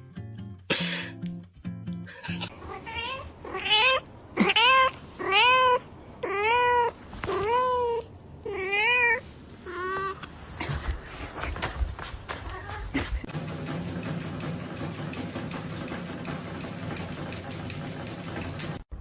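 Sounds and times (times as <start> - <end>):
cat meowing: 2.6 - 10.2, 12.4 - 13.0.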